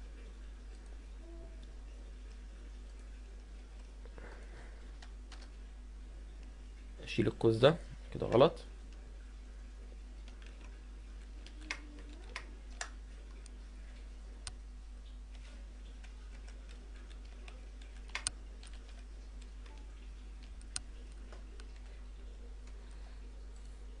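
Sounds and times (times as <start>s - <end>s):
low electrical hum: 0.0s - 24.0s
keyboard and mouse clicks: 11.4s - 13.5s, 15.3s - 21.9s.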